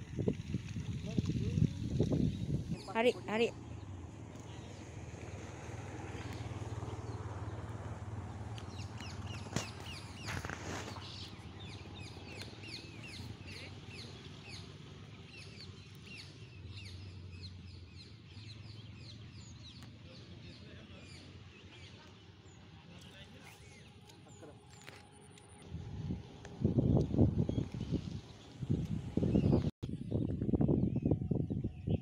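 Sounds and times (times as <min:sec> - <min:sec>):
birds chirping: 0:01.0 - 0:05.4, 0:06.0 - 0:25.6, 0:26.3 - 0:32.0
low rumble: 0:25.5 - 0:31.9.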